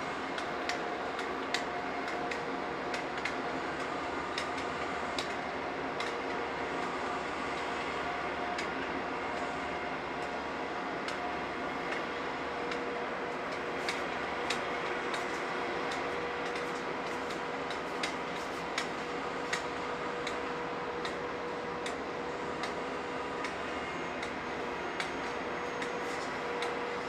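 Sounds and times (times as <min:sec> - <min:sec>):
construction machinery humming: 0:00.0 - 0:27.0
sharp irregular clicks: 0:00.4 - 0:05.4, 0:06.0 - 0:06.3, 0:13.5 - 0:18.9, 0:19.5 - 0:20.4, 0:22.6 - 0:22.8.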